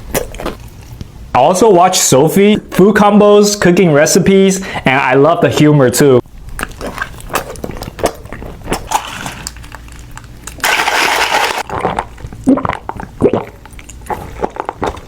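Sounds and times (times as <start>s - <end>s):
crunchy chewing: 0.0s - 1.1s, 6.4s - 15.0s.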